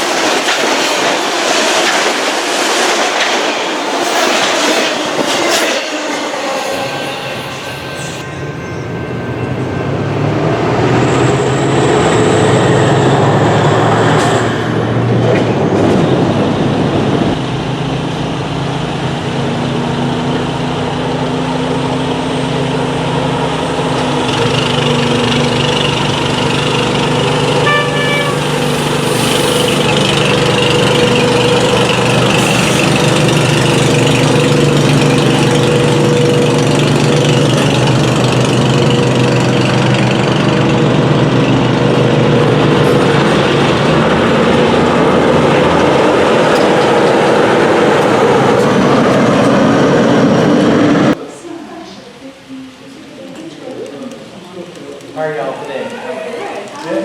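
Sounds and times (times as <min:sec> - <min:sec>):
diesel engine humming: 0:14.8 - 0:51.2
short high tones: 0:27.2 - 0:30.4.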